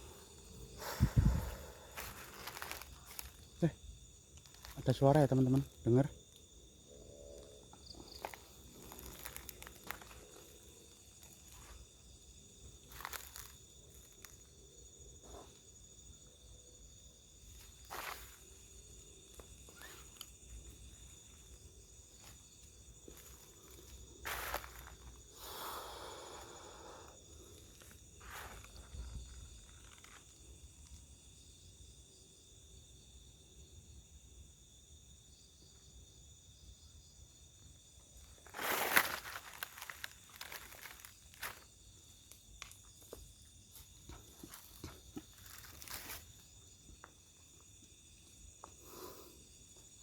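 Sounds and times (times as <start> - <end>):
crackling in dry undergrowth: 0.0 - 15.8, 17.3 - 31.2, 38.0 - 48.3
night insects chirring: 0.0 - 50.0.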